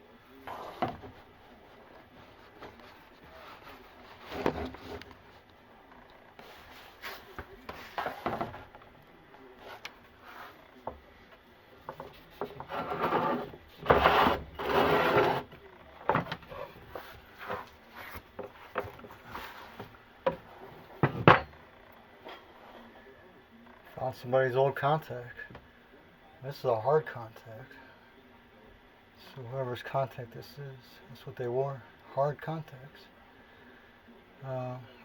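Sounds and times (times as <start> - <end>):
wooden cabinet scraping: 2.6 - 5.2, 11.9 - 21.5.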